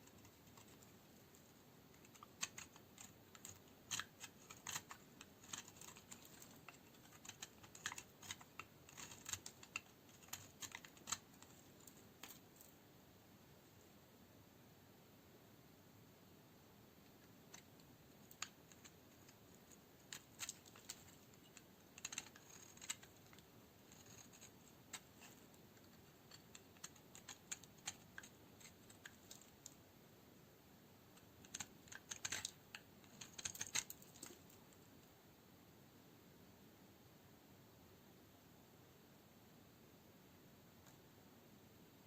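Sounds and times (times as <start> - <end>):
knife cracking through dry soap: 2.1 - 11.2, 33.2 - 34.3.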